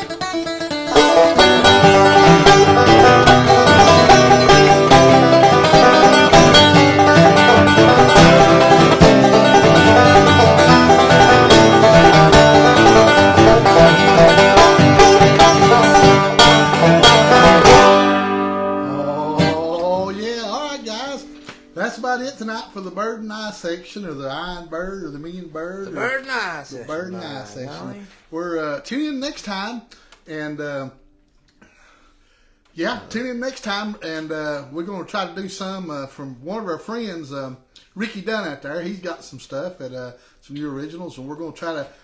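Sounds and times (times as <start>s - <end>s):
acoustic guitar picking: 0.0s - 21.7s
banjo picking: 0.0s - 21.7s.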